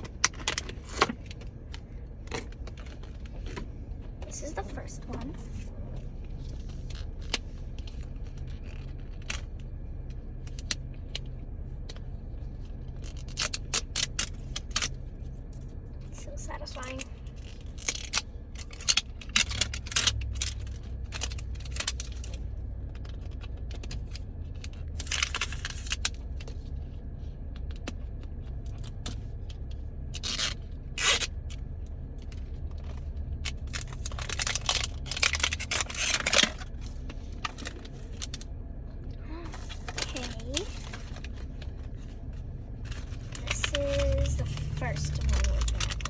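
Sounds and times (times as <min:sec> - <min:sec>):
low hum: 0:00.0 - 0:46.0
plastic packaging tearing: 0:33.7 - 0:36.7, 0:42.9 - 0:46.0.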